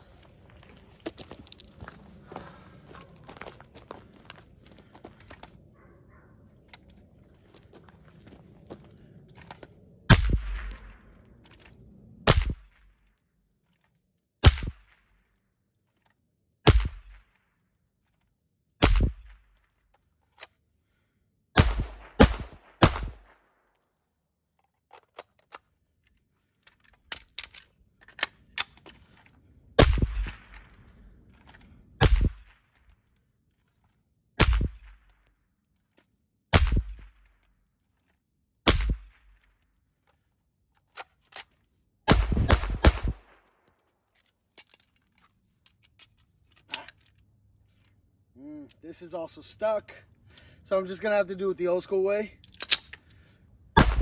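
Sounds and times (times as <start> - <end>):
suppressed gunshots: 10.1 - 11.0, 12.3 - 12.8, 14.4 - 15.0, 16.7 - 17.2, 18.8 - 19.4, 21.6 - 23.4, 29.8 - 30.8, 32.0 - 32.5, 34.4 - 35.0, 36.6 - 37.1, 38.7 - 39.2, 42.1 - 43.4, 53.8 - 54.0.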